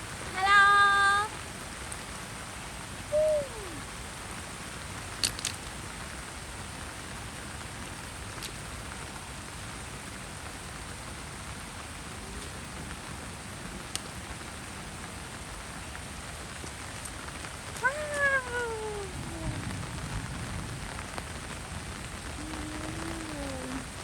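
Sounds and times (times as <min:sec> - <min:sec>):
heavy rain falling: 0:00.0 - 0:24.0
downward gliding call: 0:03.1 - 0:03.9, 0:17.8 - 0:19.8, 0:22.4 - 0:24.0.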